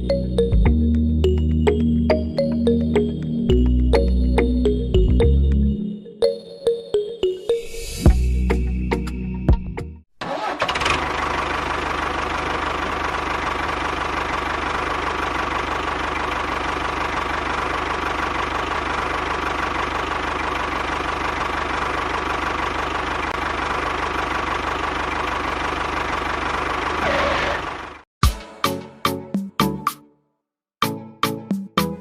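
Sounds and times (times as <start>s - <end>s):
small tractor engine running: 10.2s - 28.0s.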